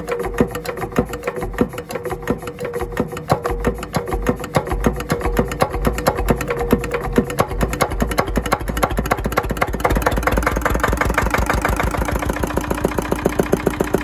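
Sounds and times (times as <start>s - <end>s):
diesel engine knocking: 4.3s - 14.0s
steady engine hum: 8.0s - 14.0s.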